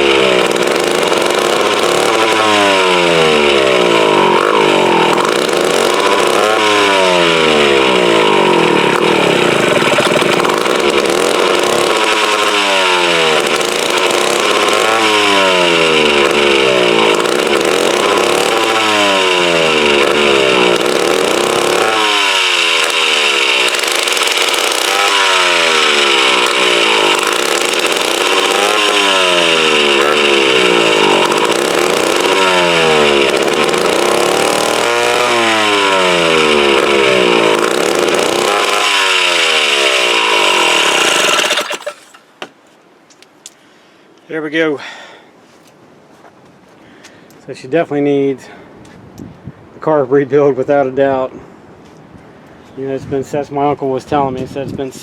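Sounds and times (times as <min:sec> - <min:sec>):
chainsaw engine surging: 0:00.0 - 0:42.4, 0:44.4 - 0:45.3.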